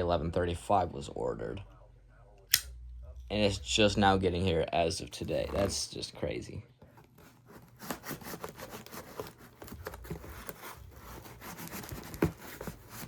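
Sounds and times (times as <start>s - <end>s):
knife scraping packing tape: 7.5s - 13.0s.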